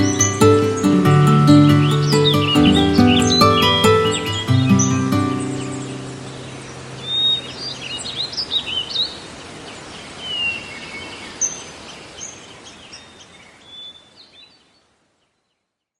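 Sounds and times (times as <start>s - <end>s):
birds chirping and whistling: 0.0s - 9.2s.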